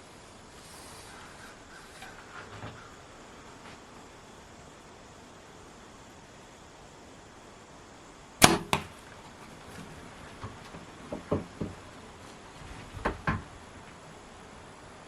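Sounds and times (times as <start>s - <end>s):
arrow striking animal: 8.4s - 9.0s
faint knocks and thumps: 9.7s - 11.9s, 12.6s - 13.6s.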